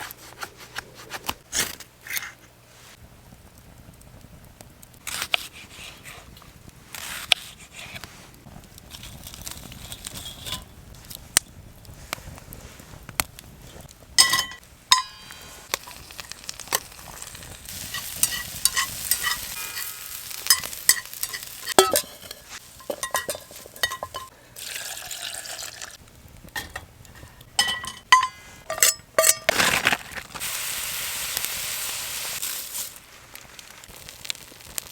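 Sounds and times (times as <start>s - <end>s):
utensil scraping a pan: 13.6s - 24.3s
food sizzling in a frying pan: 15.2s - 26.0s, 30.3s - 34.9s.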